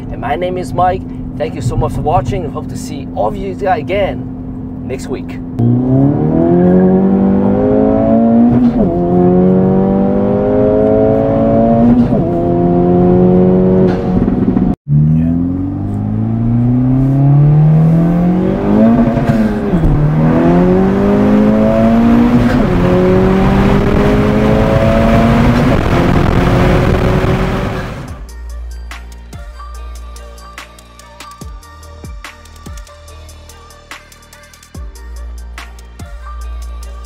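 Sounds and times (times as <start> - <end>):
car engine accelerating through gears: 5.5 - 28.2.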